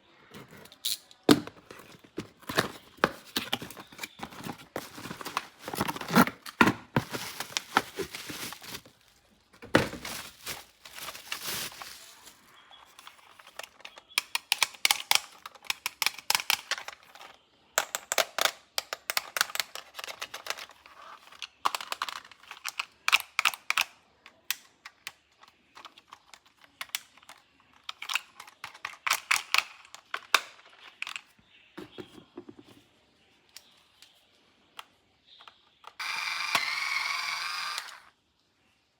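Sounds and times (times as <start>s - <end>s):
plastic parts clicking and rattling: 0.4s - 32.8s
plastic packaging crinkling and tearing: 0.7s - 13.8s.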